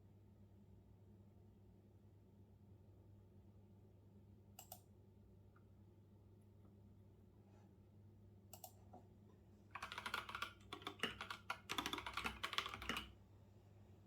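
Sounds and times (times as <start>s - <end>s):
computer keyboard typing: 9.8s - 13.2s.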